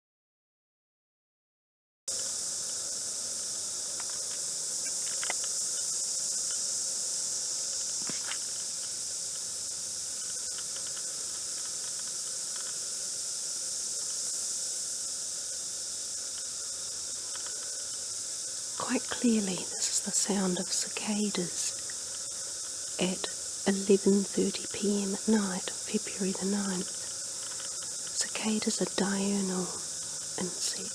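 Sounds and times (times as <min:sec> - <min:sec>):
cicadas singing: 0:02.1 - 0:30.9
faint ticks: 0:03.8 - 0:06.7, 0:10.1 - 0:12.9, 0:16.3 - 0:23.8, 0:24.4 - 0:30.9.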